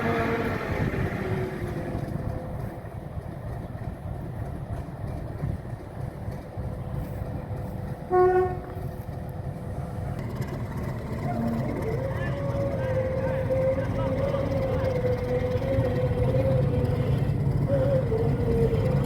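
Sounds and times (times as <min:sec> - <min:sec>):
diesel locomotive rumbling: 0:00.0 - 0:19.0
locomotive horn toot: 0:08.1 - 0:08.8.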